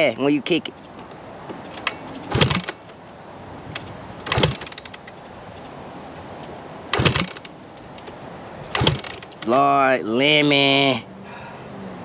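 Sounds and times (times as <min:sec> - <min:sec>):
dirt bike engine turning over: 0:01.7 - 0:02.8, 0:04.2 - 0:05.1, 0:06.9 - 0:07.5, 0:08.7 - 0:09.6
kick-start lever clack: 0:01.7 - 0:02.8, 0:04.2 - 0:05.2, 0:06.9 - 0:07.5, 0:08.7 - 0:09.5.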